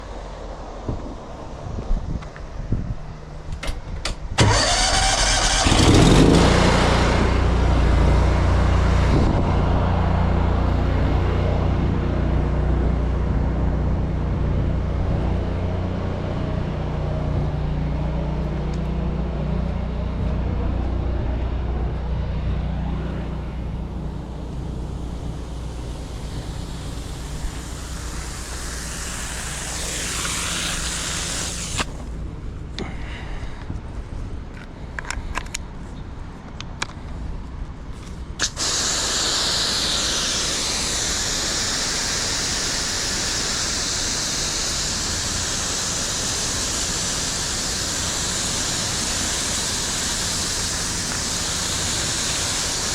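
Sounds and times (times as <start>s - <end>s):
water spray hissing: 4.4s - 7.1s, 23.8s - 32.2s, 38.4s - 52.9s
pressure washer engine: 4.4s - 32.2s, 38.4s - 52.9s.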